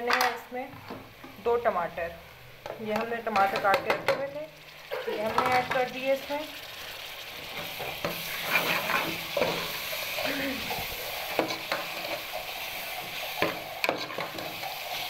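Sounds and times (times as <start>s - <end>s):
vegetables sizzling in hot oil: 0.2s - 15.0s
ladle scraping and knocking pot: 2.9s - 4.3s, 7.5s - 12.4s, 13.3s - 14.9s.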